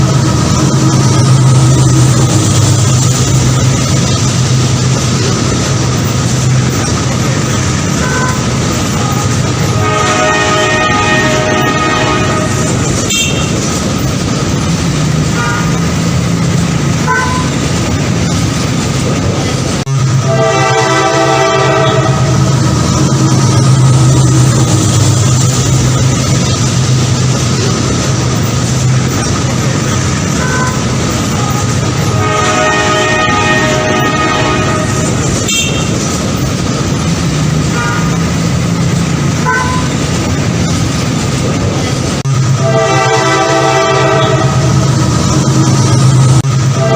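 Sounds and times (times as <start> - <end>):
train rumbling on rails: 0.0 - 46.9
train horn chord: 8.0 - 13.7, 20.2 - 22.6, 30.4 - 36.0, 42.6 - 44.9.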